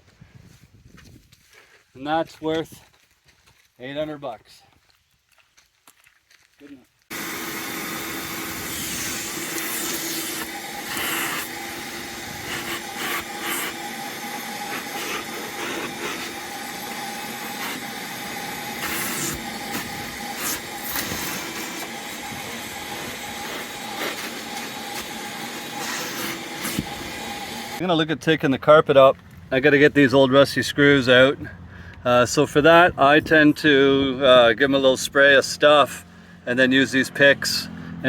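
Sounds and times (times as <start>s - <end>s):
machine hissing: 7.1s - 27.8s.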